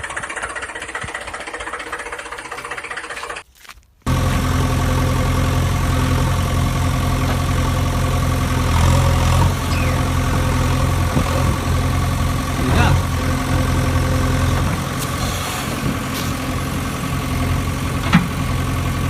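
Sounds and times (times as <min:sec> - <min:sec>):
engine idling: 0:00.0 - 0:03.5, 0:04.1 - 0:19.0.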